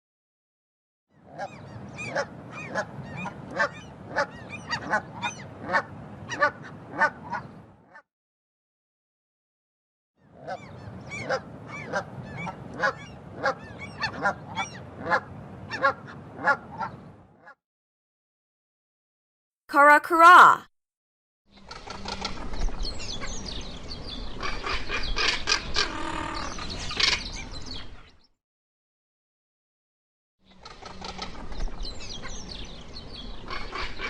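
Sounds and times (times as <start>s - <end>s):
geese honking: 1.3s - 7.5s, 10.4s - 17.0s.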